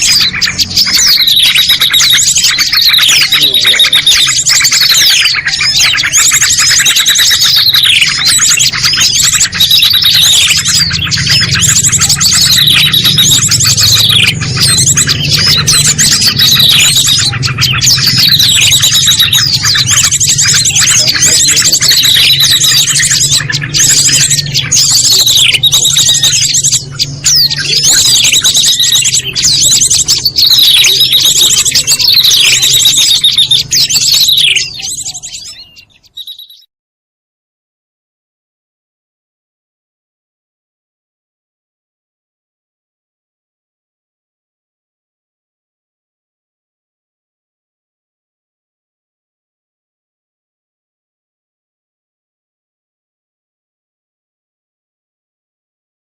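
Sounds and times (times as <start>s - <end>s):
songbirds chirping: 0.0s - 36.7s.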